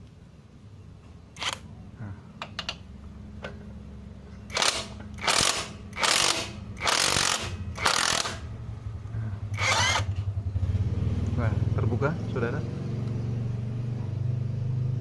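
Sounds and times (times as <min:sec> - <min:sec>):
steady low hum: 0:00.0 - 0:15.0
impact wrench hammering: 0:04.5 - 0:08.5.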